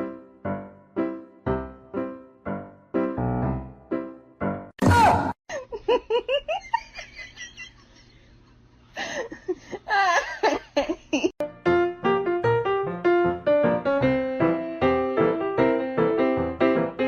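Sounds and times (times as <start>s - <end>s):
person laughing: 5.5s - 8.1s, 9.0s - 11.4s.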